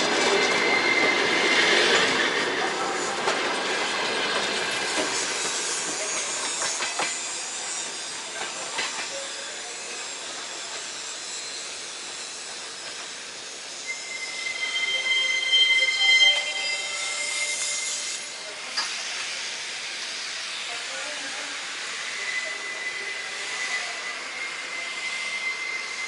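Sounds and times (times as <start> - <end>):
high wheel squeal: 0.0 - 3.2, 4.4 - 18.8, 21.9 - 26.0
railway cars clanking: 0.0 - 20.2
railway cars rolling by: 0.0 - 26.0.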